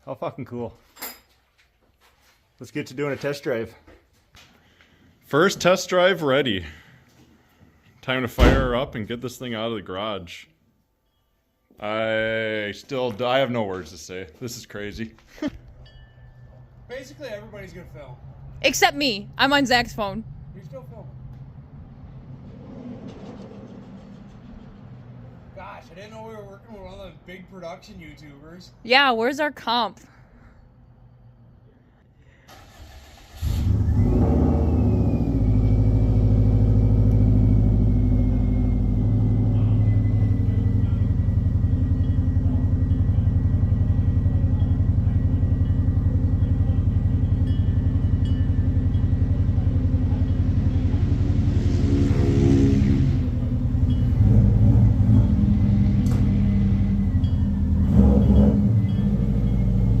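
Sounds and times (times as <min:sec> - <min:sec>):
car engine starting and idling: 0:16.9 - 0:27.0, 0:32.4 - 1:00.0.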